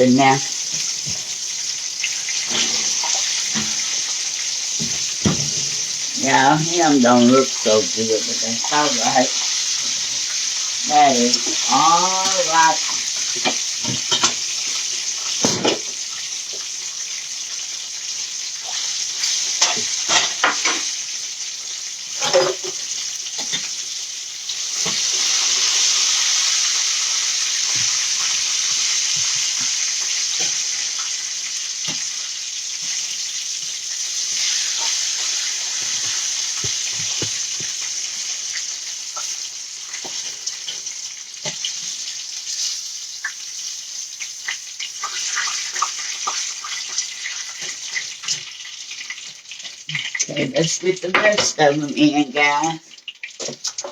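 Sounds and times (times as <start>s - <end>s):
food sizzling in oil: 0.0s - 53.9s
utensil knocking on pan: 4.8s - 6.0s.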